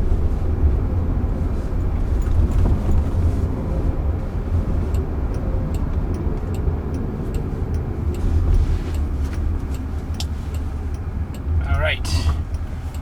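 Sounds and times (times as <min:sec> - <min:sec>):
road and tyre rumble: 0:00.0 - 0:13.0
faint light ticks: 0:01.7 - 0:13.0.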